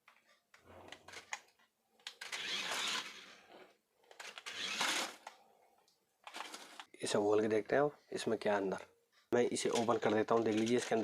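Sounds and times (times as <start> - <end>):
toy electric motor whirring: 2.1 - 3.4, 4.2 - 5.3.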